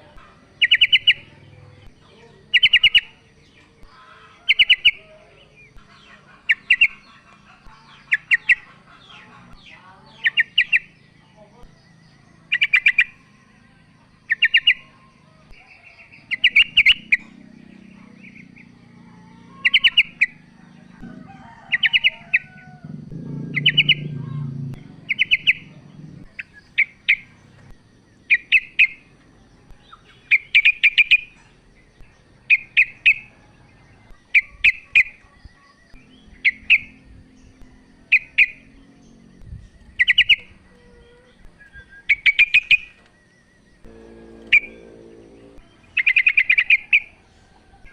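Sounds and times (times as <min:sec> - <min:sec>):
bird chattering calls: 0:00.0 - 0:11.1, 0:19.4 - 0:29.1
faint low rumble: 0:20.9 - 0:27.9, 0:43.8 - 0:46.0.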